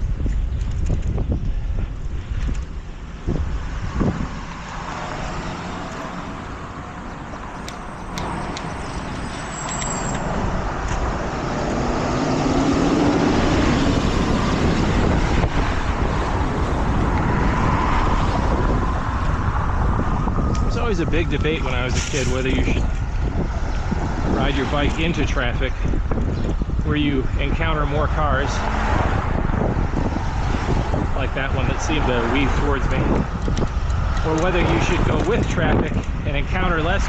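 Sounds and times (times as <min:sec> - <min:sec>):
road traffic passing: 0:00.0 - 0:37.0
wind buffeting microphone: 0:00.0 - 0:37.0.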